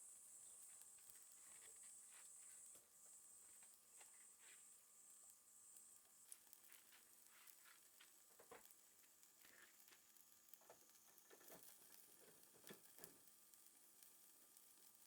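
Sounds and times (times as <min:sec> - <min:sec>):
charcoal fire crackling and snapping: 0:03.4 - 0:15.0.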